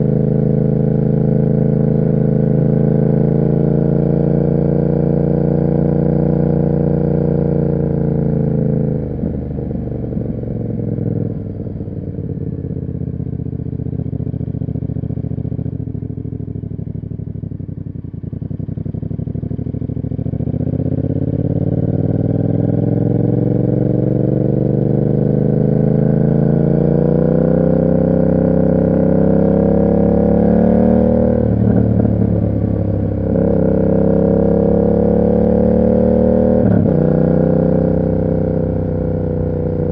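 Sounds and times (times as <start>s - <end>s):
motorcycle engine revving: 18.3s - 39.9s.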